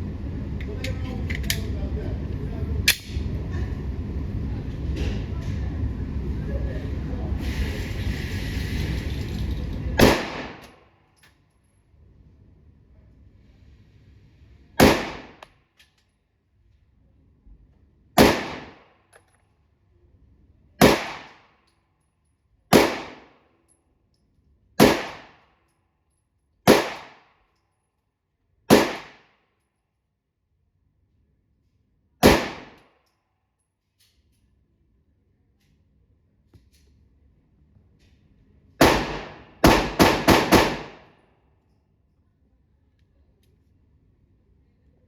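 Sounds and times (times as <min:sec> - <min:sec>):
pistol shots with echo: 0:10.0 - 0:10.7, 0:14.8 - 0:15.4, 0:18.2 - 0:18.8, 0:20.8 - 0:21.4, 0:22.7 - 0:23.4, 0:24.8 - 0:25.4, 0:26.7 - 0:27.3, 0:28.7 - 0:29.3, 0:32.2 - 0:32.8, 0:38.8 - 0:41.1.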